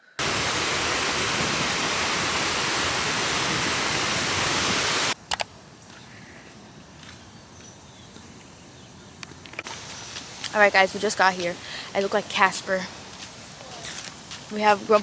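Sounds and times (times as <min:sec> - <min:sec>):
loud steady rushing noise: 0:00.1 - 0:05.2
sharp clicks: 0:05.2 - 0:05.5.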